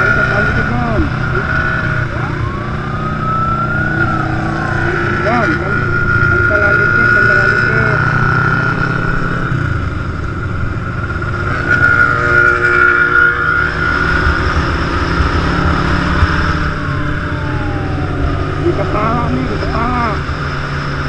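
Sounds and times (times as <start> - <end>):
motorcycle engines rumbling: 0.0 - 21.0
tone falling in pitch: 0.5 - 8.1, 15.6 - 20.2.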